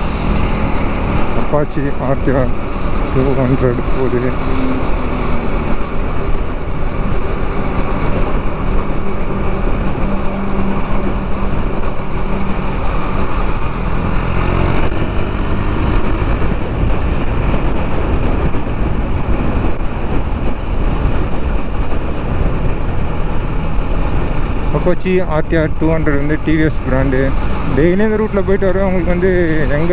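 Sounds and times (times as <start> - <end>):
motorcycle engine running: 0.0 - 29.9
wind rumble on microphone: 0.0 - 29.9.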